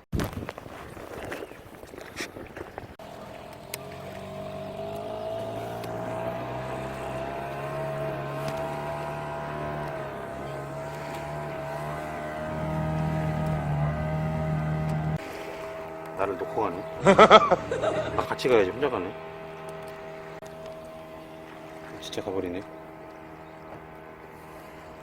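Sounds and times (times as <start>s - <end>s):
outboard motor running: 0.6s - 25.0s.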